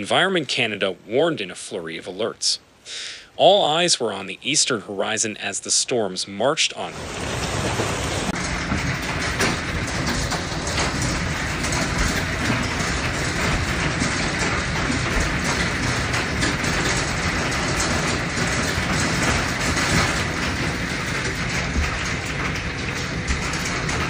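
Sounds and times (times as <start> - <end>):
hail and heavy rain: 6.7 - 24.0.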